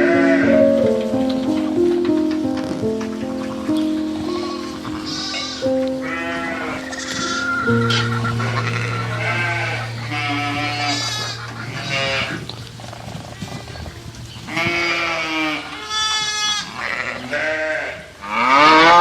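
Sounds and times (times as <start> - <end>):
steady low hum: 1.8 - 14.4
livestock bleating: 4.4 - 12.4.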